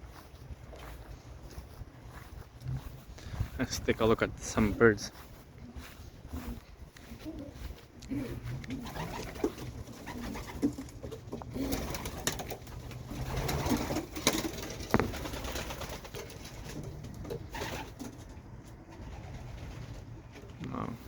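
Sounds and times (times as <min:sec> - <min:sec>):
pigeons cooing: 0:04.7 - 0:21.0
birds moving clicks and knocks: 0:07.2 - 0:20.6.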